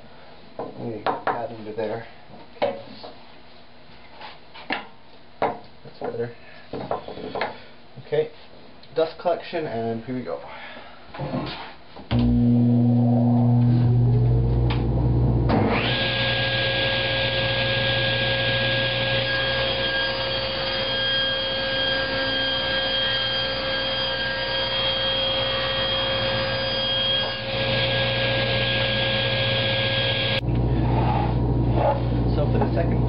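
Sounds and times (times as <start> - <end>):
table saw motor whine: 12.1 - 30.4
dust collector humming: 12.1 - 33.0.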